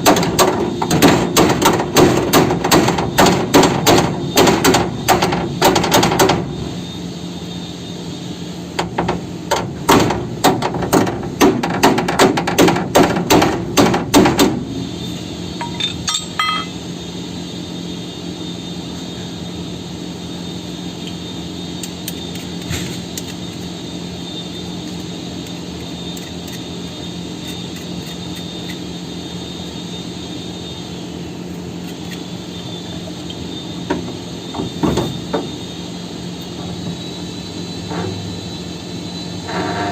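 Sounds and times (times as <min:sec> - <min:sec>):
machine hum: 0:00.0 - 0:39.9
faint high whine: 0:14.6 - 0:39.9.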